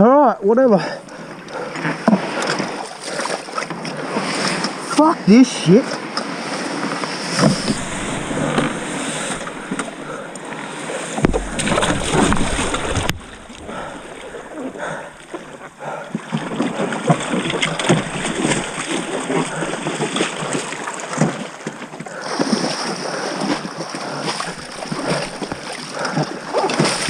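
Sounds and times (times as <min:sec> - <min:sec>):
paddles splashing water: 0:01.0 - 0:27.0
paddle knocks: 0:07.4 - 0:10.6, 0:11.2 - 0:15.6, 0:16.4 - 0:20.3.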